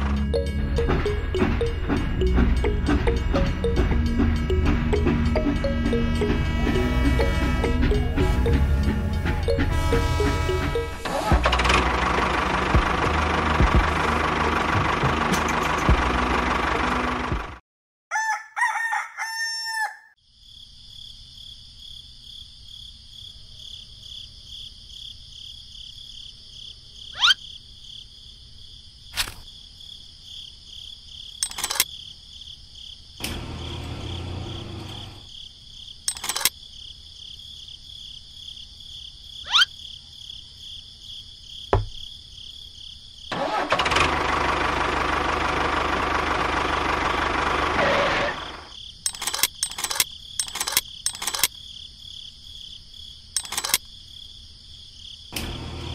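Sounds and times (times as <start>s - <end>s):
high-pitched pulsing drone: 0.0s - 13.2s
small engine running: 0.0s - 17.6s, 31.4s - 31.8s, 33.2s - 35.3s, 36.1s - 36.5s, 43.3s - 51.5s, 53.4s - 53.8s, 55.3s - 55.9s
rooster crowing: 18.1s - 20.2s
sharp clicks: 31.4s - 31.9s, 36.1s - 36.6s, 49.1s - 51.6s, 53.4s - 53.9s.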